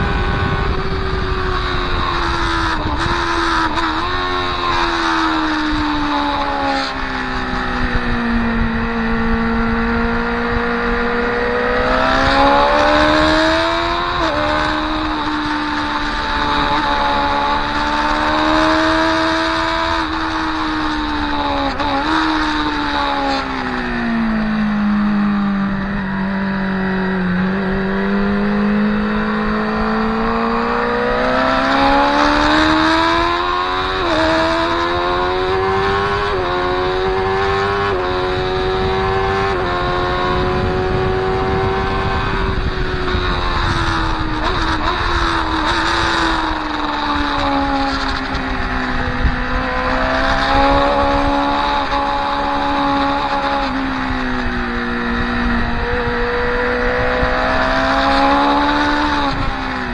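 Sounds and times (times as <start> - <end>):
motorcycle engine at speed: 0.0 - 59.9
wind rush: 0.0 - 59.9.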